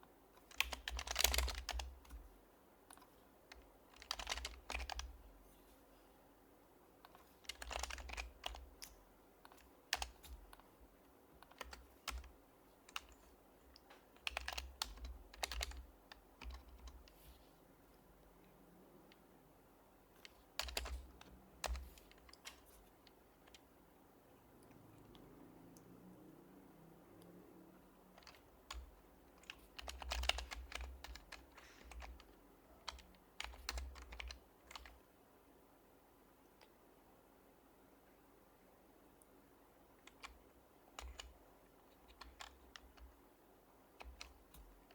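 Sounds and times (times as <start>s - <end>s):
soft keyboard typing: 0.4s - 5.3s, 7.0s - 17.4s, 20.1s - 23.8s, 27.2s - 35.1s, 40.0s - 43.2s, 43.9s - 44.9s.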